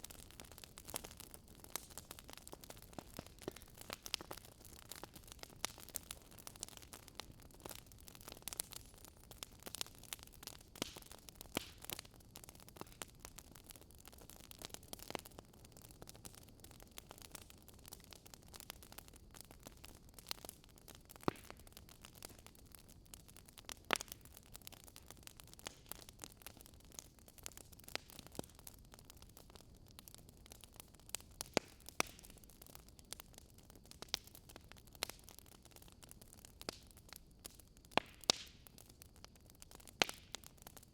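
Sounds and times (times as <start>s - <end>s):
sharp fire pops: 0.0s - 12.0s, 36.6s - 38.7s, 39.6s - 40.6s
wood fire crackling: 0.0s - 40.9s.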